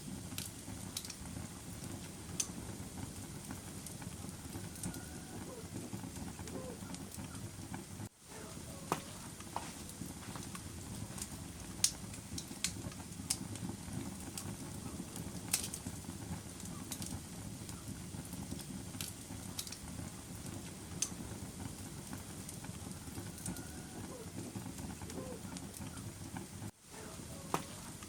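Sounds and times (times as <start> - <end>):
fire crackles and pops: 0.0 - 28.0
flames rushing in fireplace: 0.0 - 28.0.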